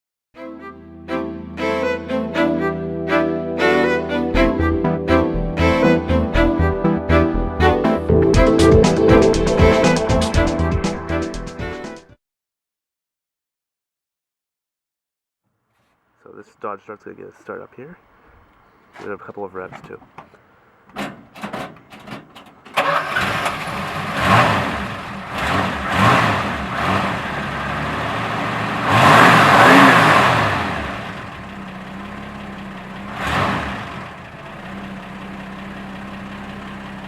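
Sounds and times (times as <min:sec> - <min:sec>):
car engine idling: 0:21.7 - 0:37.0
starter cranking engine: 0:22.5 - 0:37.0
car engine revving: 0:22.7 - 0:37.0.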